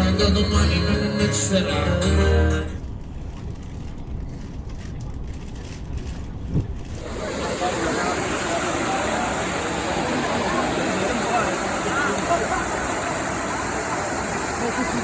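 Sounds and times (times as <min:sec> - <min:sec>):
guitar music with singing: 0:00.0 - 0:02.8.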